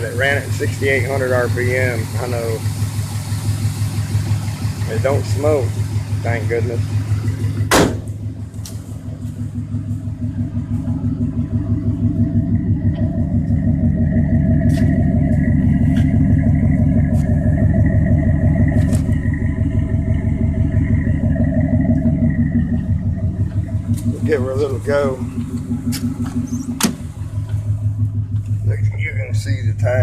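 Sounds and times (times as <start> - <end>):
pickup engine idling: 0.0 - 30.0
sharp knock: 7.7 - 8.2.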